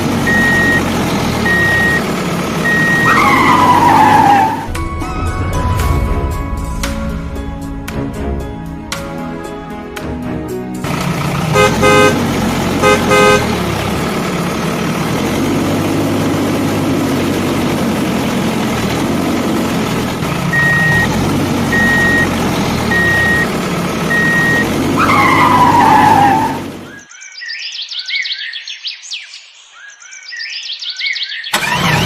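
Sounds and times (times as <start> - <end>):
truck horn honking: 0.0 - 4.7, 10.8 - 14.4, 20.3 - 27.0
truck engine running: 0.0 - 27.0, 31.6 - 32.0
high beeps: 0.3 - 0.8, 1.4 - 2.0, 20.5 - 21.1, 21.7 - 22.3, 22.9 - 23.5, 24.1 - 24.6.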